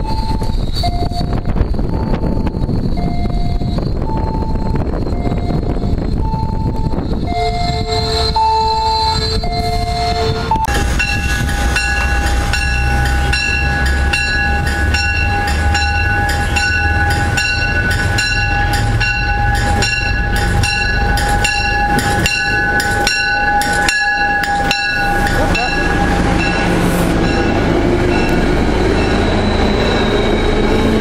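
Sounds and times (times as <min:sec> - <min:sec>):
train bell ringing: 0:00.0 - 0:31.0
train rumble: 0:00.0 - 0:31.0
train horn chord: 0:10.1 - 0:22.0.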